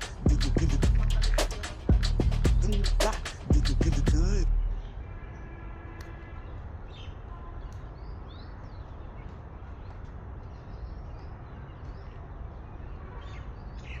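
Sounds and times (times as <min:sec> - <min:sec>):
birds chirping: 0:00.0 - 0:14.0
low rumble: 0:00.3 - 0:04.8.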